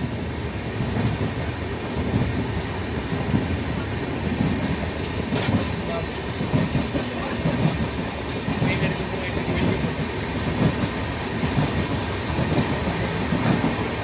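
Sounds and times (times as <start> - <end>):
wheels rumbling on rails: 0.0 - 14.0.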